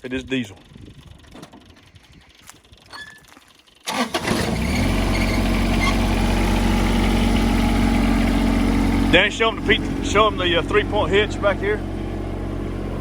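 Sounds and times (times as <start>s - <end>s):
diesel tractor engine starting and idling: 3.7s - 13.0s.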